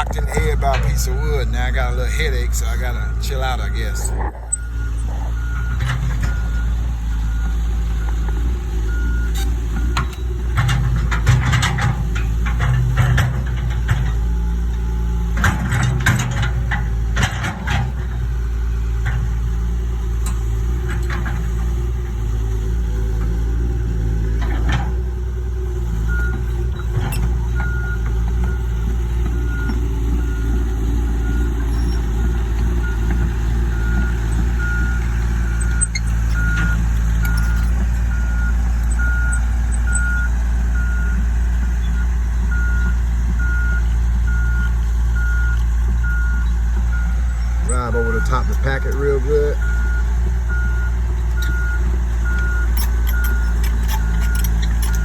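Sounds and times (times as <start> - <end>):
excavator diesel engine running: 0.0 - 55.0
metal clanks and knocks: 9.4 - 14.3, 15.3 - 18.2, 52.4 - 55.0.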